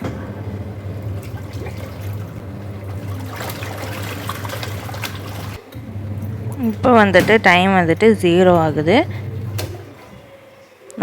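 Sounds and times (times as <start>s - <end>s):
washing machine motor humming: 0.0s - 11.0s
water sloshing in tub: 1.1s - 5.6s.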